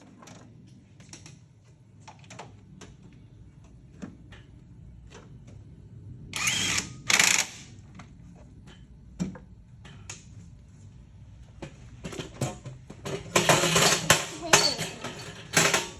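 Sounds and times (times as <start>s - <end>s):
hand tools clinking on metal: 13.3s - 15.9s.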